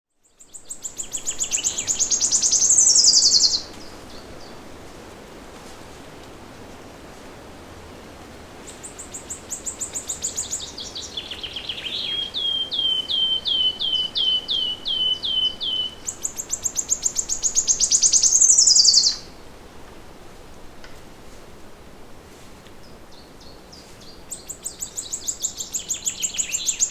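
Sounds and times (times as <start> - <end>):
songbird singing: 0.1 - 4.8, 8.6 - 19.5, 22.7 - 26.9
forest ambience hiss: 0.2 - 26.9.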